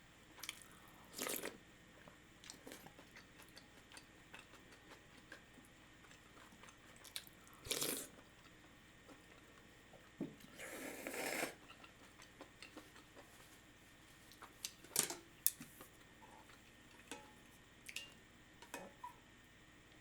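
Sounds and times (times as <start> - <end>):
quiet eating sounds: 0.2 - 19.3
dishes and cutlery clicking: 14.9 - 15.3.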